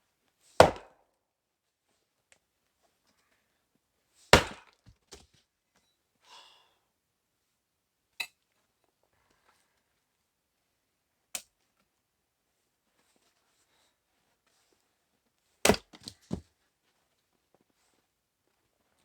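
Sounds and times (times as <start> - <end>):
axe chopping wood: 0.6 - 0.9, 4.3 - 4.7, 15.7 - 16.4.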